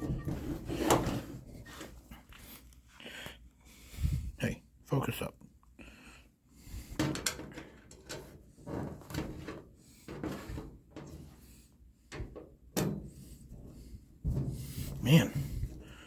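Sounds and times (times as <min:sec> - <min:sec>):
furniture parts scraping: 0:00.0 - 0:02.1.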